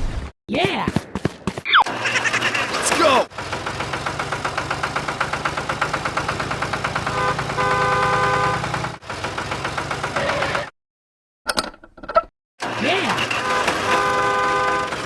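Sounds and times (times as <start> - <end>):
engine running with rapid beat: 1.2 - 10.7.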